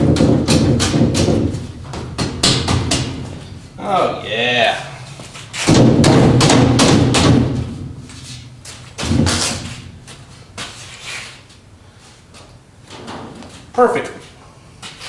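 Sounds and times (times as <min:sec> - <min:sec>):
wooden framing knocks and thuds: 0:00.0 - 0:03.8, 0:05.2 - 0:10.7.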